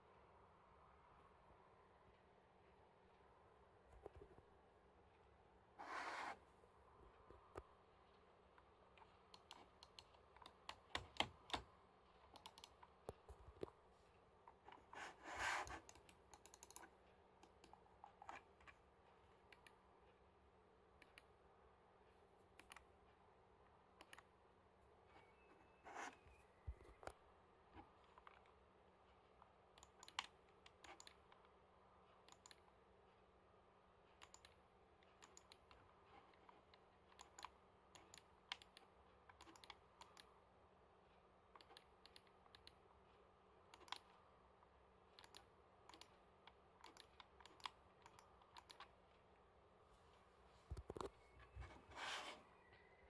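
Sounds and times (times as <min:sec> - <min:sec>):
typing on computer keyboard: 0:09.4 - 0:11.7, 0:12.3 - 0:13.7, 0:15.6 - 0:18.4, 0:37.2 - 0:40.3.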